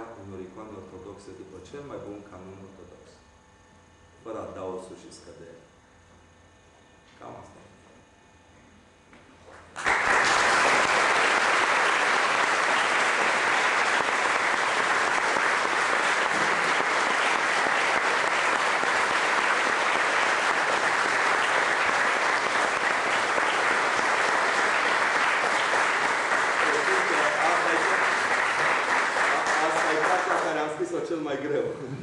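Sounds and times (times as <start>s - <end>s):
audience applauding: 9.7s - 30.8s.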